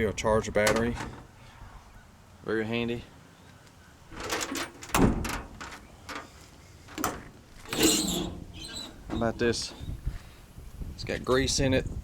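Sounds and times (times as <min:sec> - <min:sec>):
metal compartment clanking: 0:00.6 - 0:01.3, 0:04.1 - 0:10.0.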